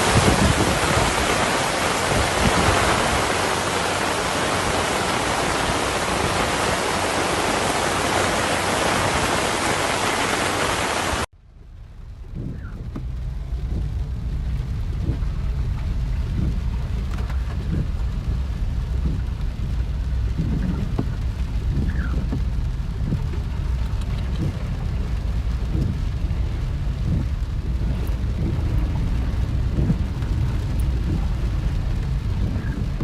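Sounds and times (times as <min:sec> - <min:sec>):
heavy rain: 0:00.0 - 0:33.0
low rumble: 0:11.3 - 0:33.0.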